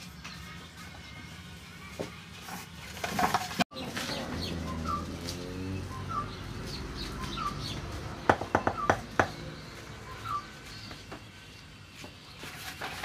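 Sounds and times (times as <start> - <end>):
birds chirping: 3.7 - 12.6.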